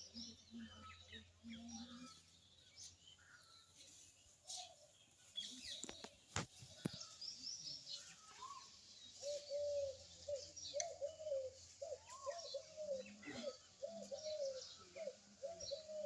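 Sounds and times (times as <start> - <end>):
birds chirping: 0.0 - 16.0
lower warbling bird calls: 7.8 - 16.0.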